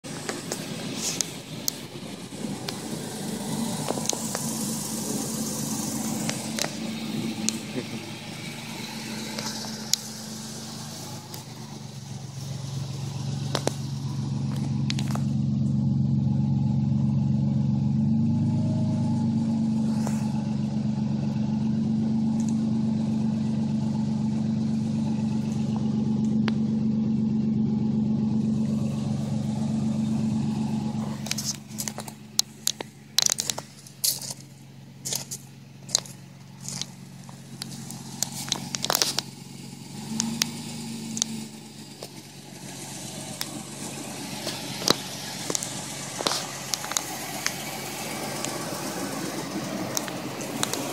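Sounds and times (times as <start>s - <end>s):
truck engine idling: 0.0s - 50.9s
sharp crackling and clicking: 0.2s - 15.4s, 28.9s - 50.9s.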